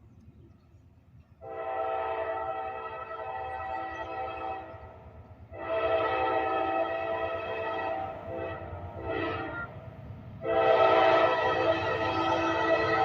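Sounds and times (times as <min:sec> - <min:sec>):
train rumbling: 0:00.0 - 0:13.0
locomotive air horn blasts: 0:01.4 - 0:04.9, 0:05.5 - 0:09.8, 0:10.4 - 0:13.0.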